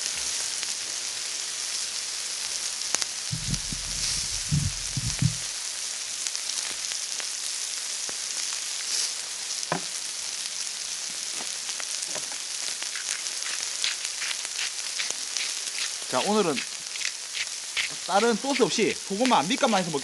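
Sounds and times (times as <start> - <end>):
meat sizzling on hot stones: 0.0 - 20.0
crackles and pops: 2.5 - 20.0
dull knocks: 3.4 - 5.4.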